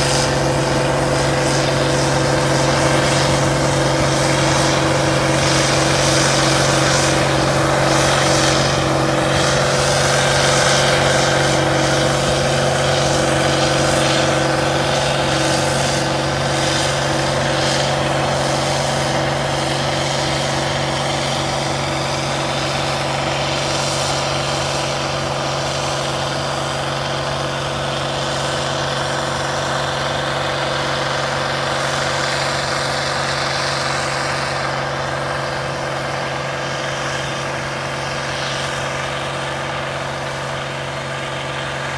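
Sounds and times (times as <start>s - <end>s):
combine harvester drone: 0.0s - 41.9s.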